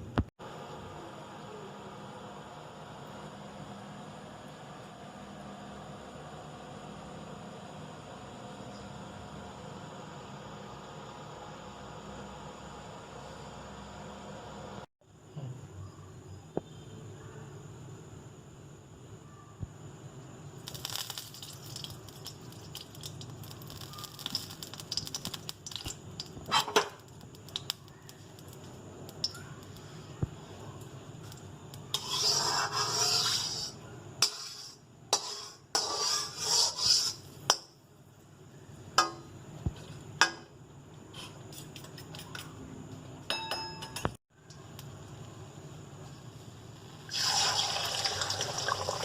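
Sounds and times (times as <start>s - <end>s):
utensils clinking against dishes: 43.2s - 44.2s.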